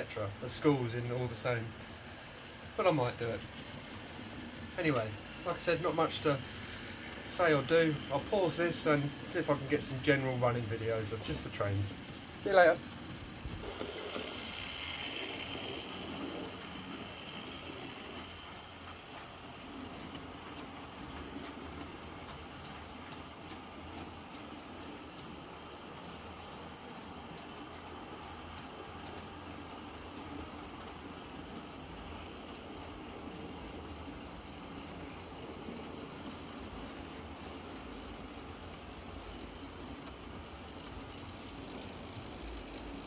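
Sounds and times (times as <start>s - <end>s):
faint high whine: 0.0s - 24.1s
model trains running: 0.0s - 43.0s
wheels rumbling on track: 0.0s - 43.0s.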